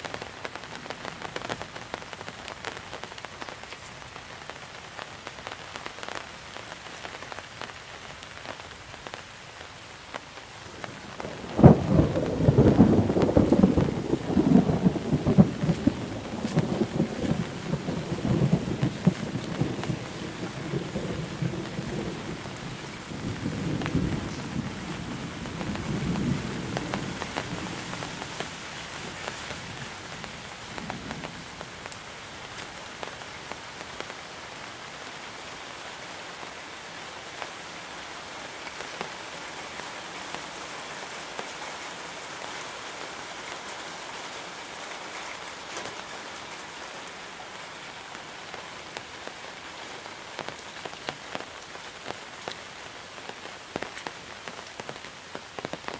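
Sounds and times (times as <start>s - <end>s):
rain falling steadily: 0.0s - 55.9s
low thunder roll: 11.2s - 27.9s.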